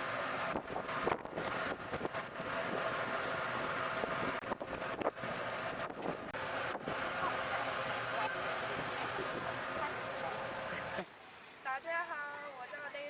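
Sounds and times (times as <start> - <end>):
wind noise on microphone: 0.0 - 7.1
mechanical drone: 0.0 - 11.0.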